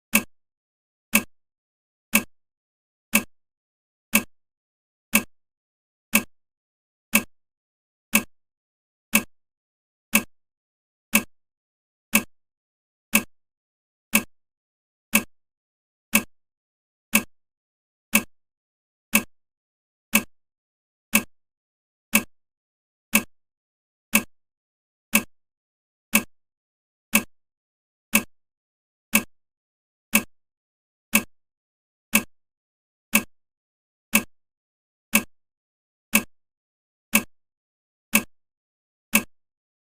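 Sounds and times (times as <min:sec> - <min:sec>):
timer ticking: 0:00.1 - 0:00.3, 0:01.1 - 0:01.3, 0:02.1 - 0:02.3, 0:03.1 - 0:03.3, 0:04.1 - 0:04.3, 0:05.1 - 0:05.3, 0:06.1 - 0:06.4, 0:07.1 - 0:07.4, 0:08.1 - 0:08.4, 0:09.1 - 0:09.4, 0:10.1 - 0:10.4, 0:11.1 - 0:11.4, 0:12.1 - 0:12.4, 0:13.1 - 0:13.4, 0:14.1 - 0:14.4, 0:15.1 - 0:15.4, 0:16.1 - 0:16.4, 0:17.1 - 0:17.3, 0:18.1 - 0:18.3, 0:19.1 - 0:19.3, 0:20.1 - 0:20.3, 0:21.1 - 0:21.4, 0:22.1 - 0:22.4, 0:23.1 - 0:23.4, 0:24.1 - 0:24.4, 0:25.1 - 0:25.4, 0:26.1 - 0:26.4, 0:27.1 - 0:27.4, 0:28.1 - 0:28.4, 0:29.1 - 0:29.4, 0:30.1 - 0:30.4, 0:31.1 - 0:31.4, 0:32.1 - 0:32.4, 0:33.1 - 0:33.4, 0:34.1 - 0:34.4, 0:35.1 - 0:35.4, 0:36.1 - 0:36.4, 0:37.1 - 0:37.4, 0:38.1 - 0:38.4, 0:39.1 - 0:39.4.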